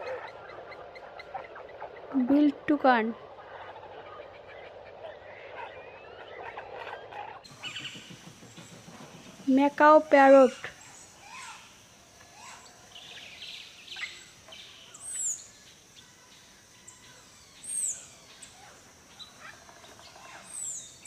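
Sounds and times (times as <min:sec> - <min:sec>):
faint bird chirps: 0:00.0 - 0:21.0
background hiss: 0:07.4 - 0:21.0.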